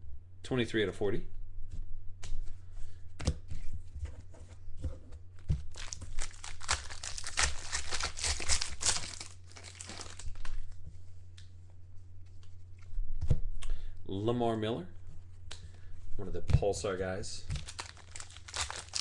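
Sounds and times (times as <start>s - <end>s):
low electrical hum: 0.0s - 19.0s
foil pack tearing and crinkling: 5.7s - 10.6s, 17.6s - 19.0s.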